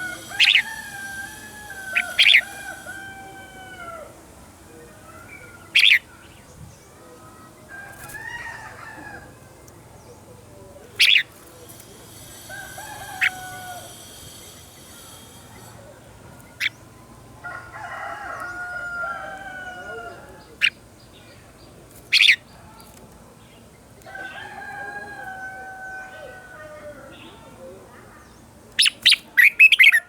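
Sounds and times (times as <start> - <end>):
rooster crowing: 0.0 - 4.2, 7.7 - 9.4, 12.3 - 15.3, 17.4 - 20.5, 24.1 - 27.2
birds singing warbling phrases: 0.0 - 12.5, 20.0 - 25.4, 26.0 - 30.0.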